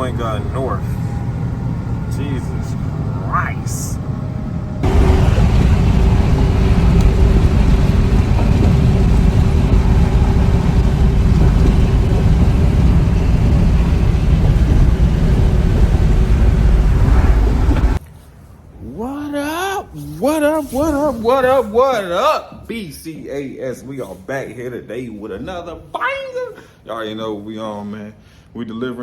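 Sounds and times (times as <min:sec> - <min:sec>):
mid-pitched hum: 0:00.0 - 0:18.0
truck engine and road noise: 0:00.0 - 0:18.8.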